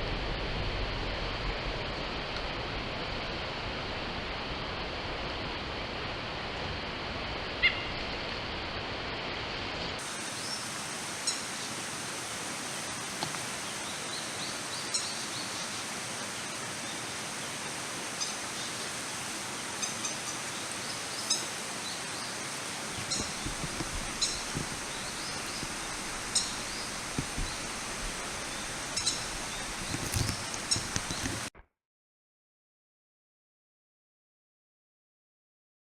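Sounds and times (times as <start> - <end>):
stream water flowing: 0.5 - 31.5
high bird chirps: 22.9 - 27.8, 28.4 - 31.3
low knocks: 23.0 - 28.3.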